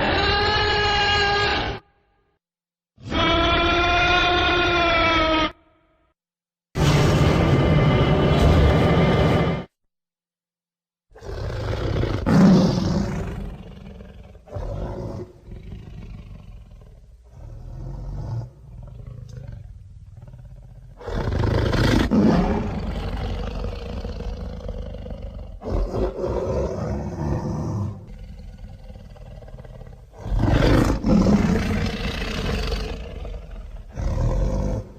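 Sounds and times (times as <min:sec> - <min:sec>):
creature roaring: 0:06.8 - 0:09.7, 0:11.2 - 0:34.9
creature growling: 0:11.2 - 0:34.9.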